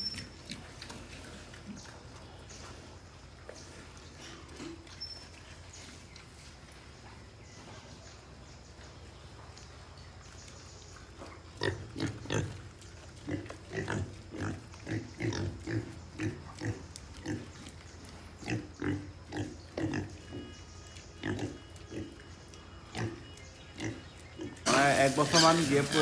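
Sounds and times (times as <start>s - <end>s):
pigs grunting and squealing: 11.2s - 20.5s, 21.2s - 22.2s, 23.8s - 26.0s.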